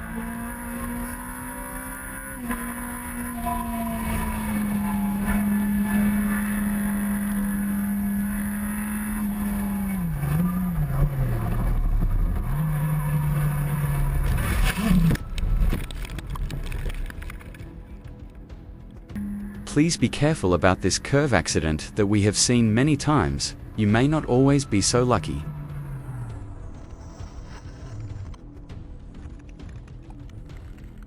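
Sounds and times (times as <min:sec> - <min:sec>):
motorcycle engine revving: 0:00.0 - 0:17.6, 0:19.1 - 0:28.5.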